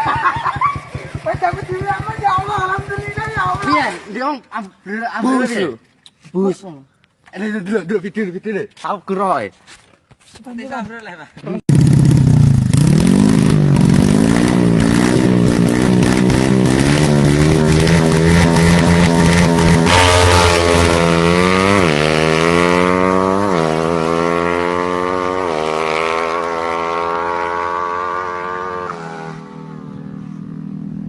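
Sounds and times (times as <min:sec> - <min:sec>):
engine running hard: 0:11.7 - 0:31.0.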